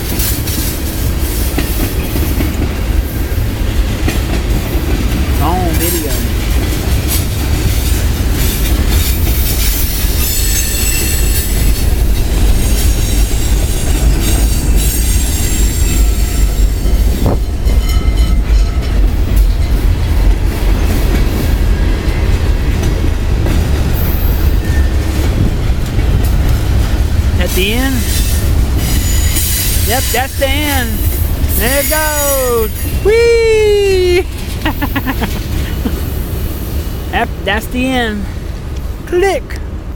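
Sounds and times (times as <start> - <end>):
wheels clacking over rail joints: 0.0 - 31.6
train cars rumbling past: 0.0 - 39.9
train wheels squealing: 7.8 - 17.0, 24.0 - 25.0, 28.0 - 30.2, 32.1 - 33.1.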